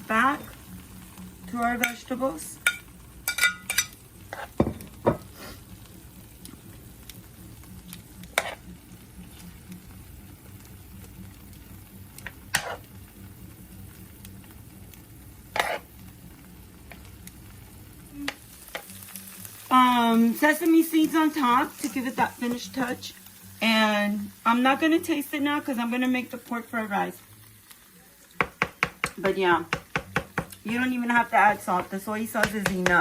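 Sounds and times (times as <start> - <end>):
food sizzling on a grill: 0.0 - 33.0
utensil knocking on a grill: 4.6 - 5.3, 28.4 - 30.8, 31.7 - 33.0.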